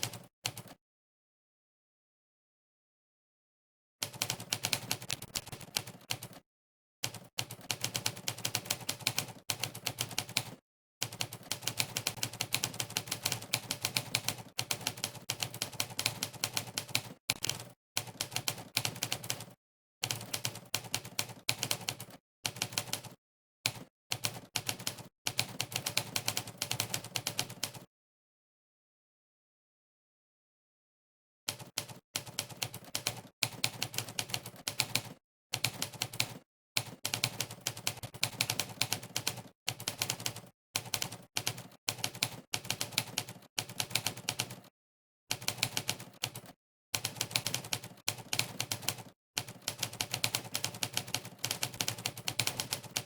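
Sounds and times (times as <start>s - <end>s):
simulated typewriter keystrokes: 45.3s - 53.0s.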